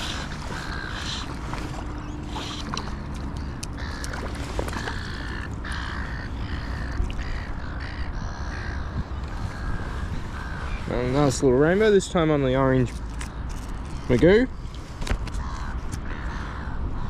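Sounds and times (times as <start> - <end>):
wind on microphone: 6.4 - 11.7.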